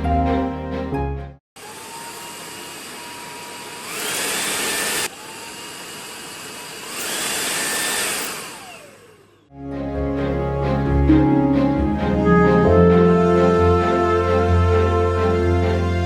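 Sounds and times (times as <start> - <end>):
vacuum cleaner motor whine: 1.6 - 9.5.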